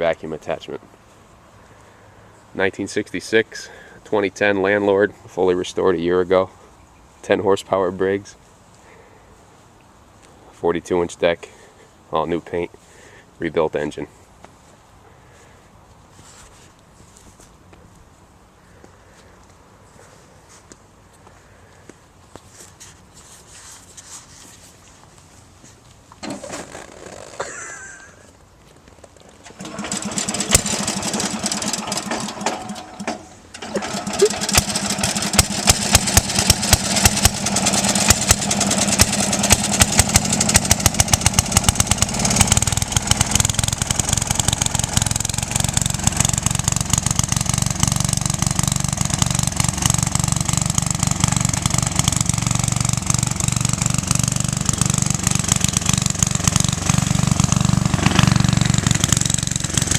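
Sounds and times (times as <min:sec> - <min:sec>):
small engine starting and running: 0:26.2 - 0:28.0, 0:29.4 - 0:59.9.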